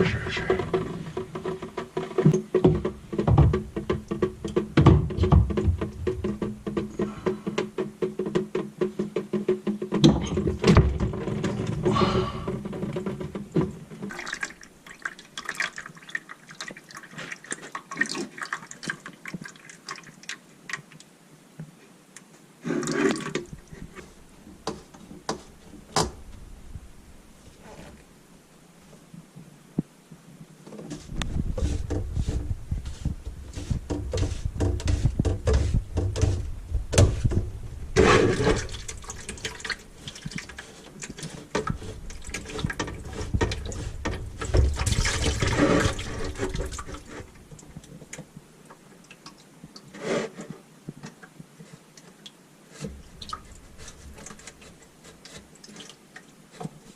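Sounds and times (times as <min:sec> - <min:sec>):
handling clicks and knocks: 0:00.0 - 0:14.6
water running and splashing: 0:13.9 - 0:21.0, 0:38.0 - 0:48.2.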